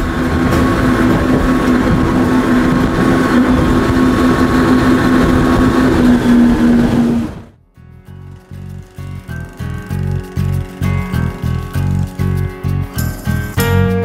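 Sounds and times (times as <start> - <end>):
rushing water and air: 0.0 - 7.6
boat engine running: 0.0 - 13.8.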